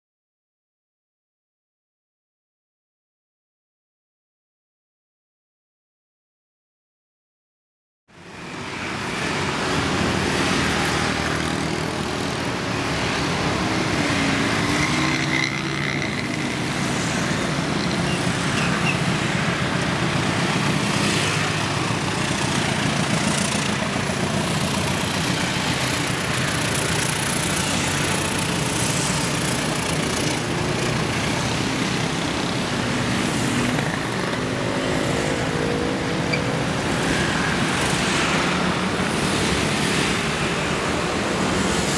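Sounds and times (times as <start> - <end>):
passenger train running: 8.6 - 41.9.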